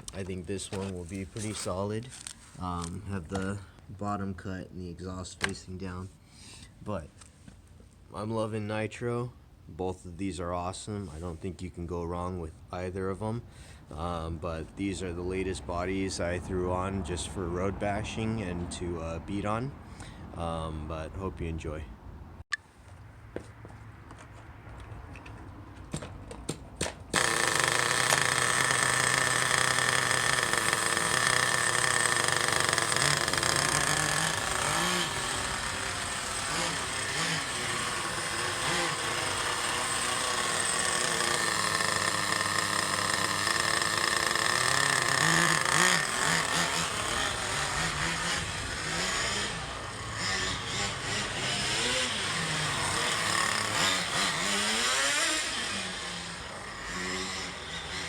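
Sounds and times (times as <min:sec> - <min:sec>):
small nitro engine buzzing: 0:27.1 - 0:58.0.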